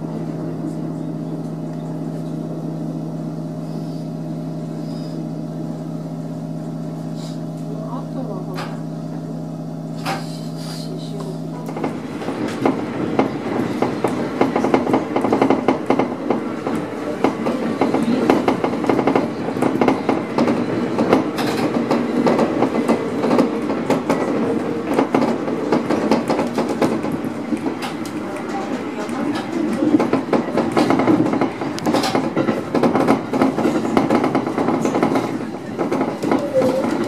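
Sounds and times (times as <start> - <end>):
train running noise: 0.0 - 37.0
wheels clattering over rail joints: 11.6 - 37.0.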